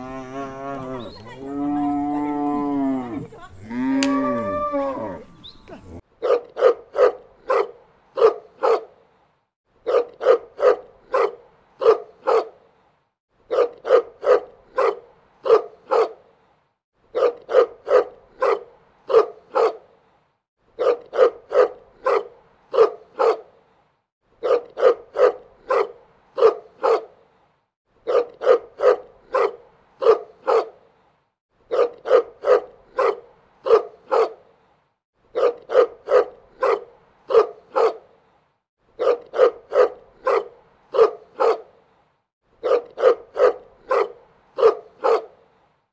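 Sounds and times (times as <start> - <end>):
dog barking: 6.2 - 8.9, 9.8 - 12.6, 13.5 - 16.2, 17.1 - 19.9, 20.8 - 23.5, 24.4 - 27.2, 28.0 - 30.8, 31.7 - 34.4, 35.3 - 38.1, 39.0 - 41.7, 42.6 - 45.4.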